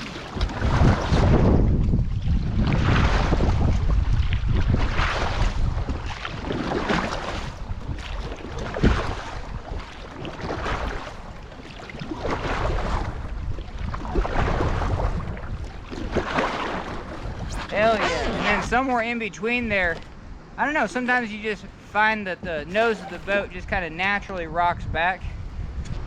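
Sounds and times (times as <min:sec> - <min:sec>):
paddle strokes splashing water: 0:00.0 - 0:20.3, 0:20.9 - 0:23.7
wind buffeting microphone: 0:00.0 - 0:26.0.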